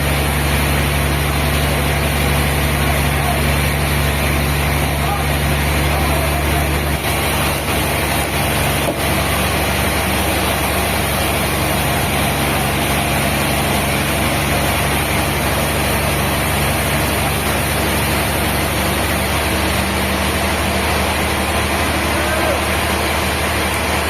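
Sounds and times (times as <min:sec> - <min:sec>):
heavy machinery engine humming: 0:00.0 - 0:24.0.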